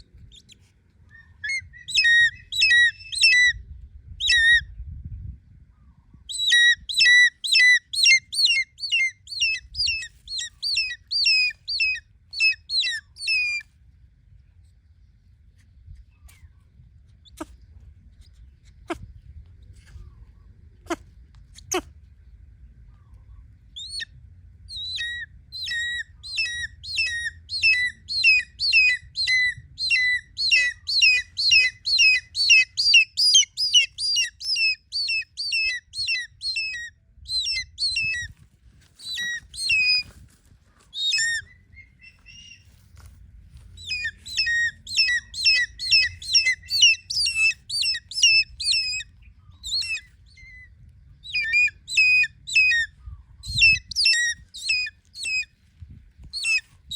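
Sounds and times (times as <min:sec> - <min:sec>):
hawk-eagle shrill calls: 0:06.3 - 0:13.6, 0:24.7 - 0:38.3, 0:39.0 - 0:40.1, 0:40.9 - 0:42.7, 0:43.8 - 0:52.9, 0:53.5 - 0:55.5, 0:56.4 - 0:56.7.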